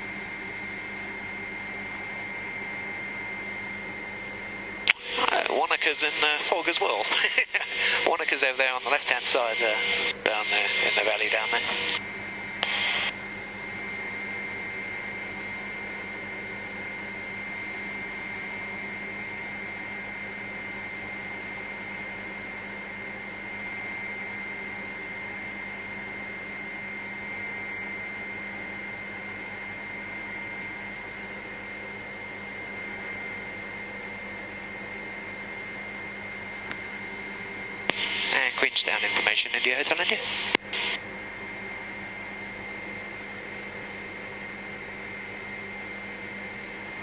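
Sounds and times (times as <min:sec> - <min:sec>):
helicopter engine and rotors droning: 0:00.0 - 0:25.9, 0:32.2 - 0:46.6
high whine: 0:01.4 - 0:19.4, 0:36.7 - 0:41.0.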